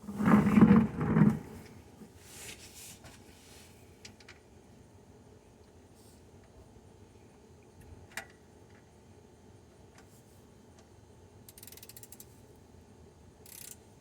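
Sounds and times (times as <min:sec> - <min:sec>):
ratchet clicking: 0:11.5 - 0:12.3, 0:13.4 - 0:13.8
ratchet ticks: 0:11.5 - 0:12.3, 0:13.4 - 0:13.8.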